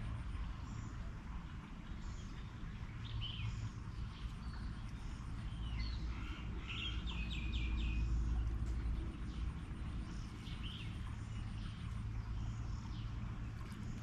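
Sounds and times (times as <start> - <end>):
steady low rumble: 0.0 - 14.0
wild birds chirping and whistling: 3.0 - 8.4.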